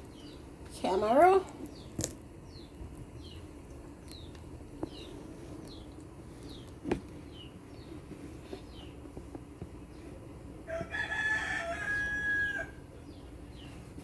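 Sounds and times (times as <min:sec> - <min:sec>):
small bird chirping: 0:00.0 - 0:00.5, 0:01.7 - 0:09.0.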